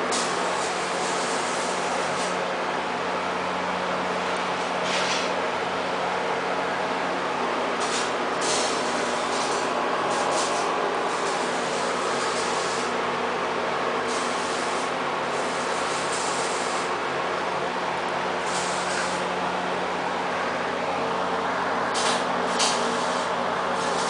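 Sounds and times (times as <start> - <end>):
machine hum: 0.0 - 24.0
plasma cutter hissing: 0.1 - 2.4, 7.8 - 13.0, 14.1 - 17.0, 18.4 - 19.3, 22.0 - 24.0.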